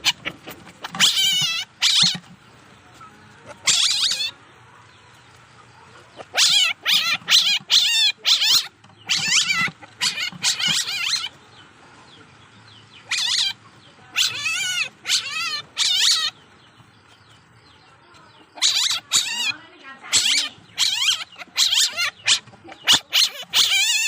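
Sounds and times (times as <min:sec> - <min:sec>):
young civet squealing: 0:00.0 - 0:02.4, 0:03.4 - 0:04.4, 0:06.0 - 0:11.4, 0:13.0 - 0:16.4, 0:18.4 - 0:24.0.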